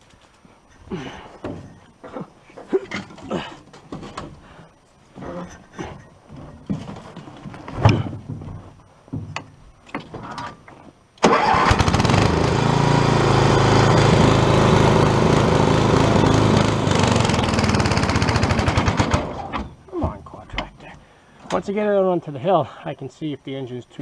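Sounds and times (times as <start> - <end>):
small engine running loudly: 11.7 - 19.4.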